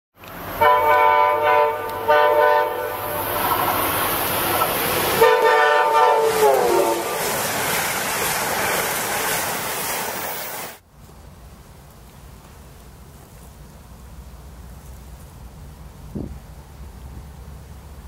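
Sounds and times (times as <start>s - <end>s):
train coaches rushing by: 0.3s - 11.2s
train horn blasts: 0.6s - 3.4s, 5.2s - 7.2s.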